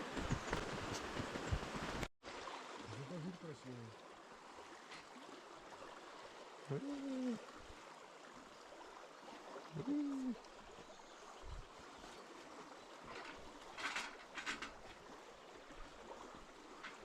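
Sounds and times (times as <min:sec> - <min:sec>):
short vocal sound: 0:06.7 - 0:07.5, 0:09.7 - 0:10.4.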